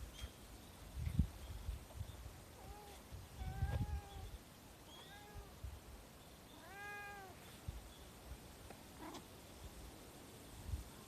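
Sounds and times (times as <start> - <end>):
cat meowing: 4.9 - 5.6, 6.6 - 7.4.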